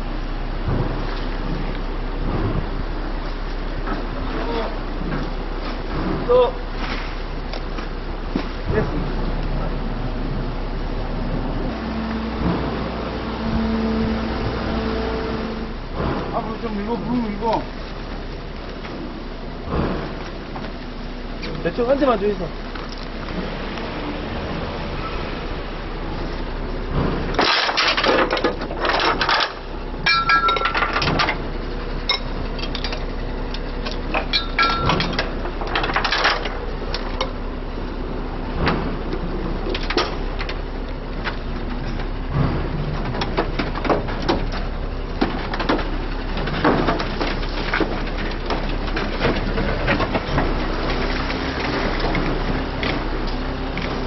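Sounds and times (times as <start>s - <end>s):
engine hum: 0.0s - 54.0s
metal knocks and clanks: 11.7s - 15.1s, 26.8s - 37.4s, 41.2s - 54.0s.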